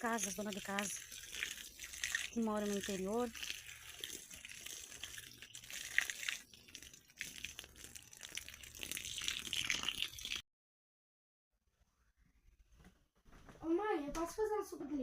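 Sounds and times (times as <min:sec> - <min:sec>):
running water splashing: 0:00.0 - 0:10.4.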